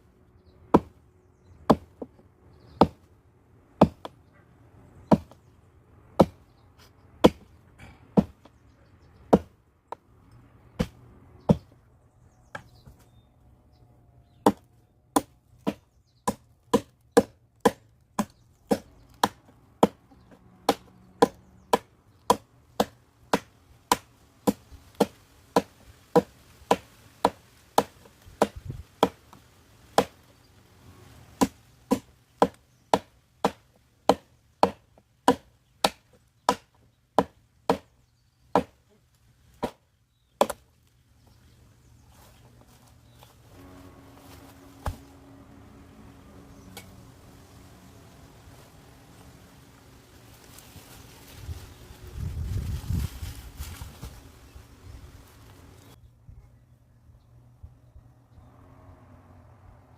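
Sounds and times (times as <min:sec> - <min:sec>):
axe chopping firewood: 0:00.7 - 0:01.0, 0:01.7 - 0:02.1, 0:02.8 - 0:03.1, 0:03.8 - 0:04.2, 0:05.1 - 0:05.4, 0:06.2 - 0:06.4, 0:07.2 - 0:08.5, 0:09.3 - 0:09.6, 0:10.8 - 0:11.7, 0:14.4 - 0:30.2, 0:31.4 - 0:37.9, 0:38.5 - 0:38.8, 0:39.5 - 0:39.8, 0:40.4 - 0:40.6.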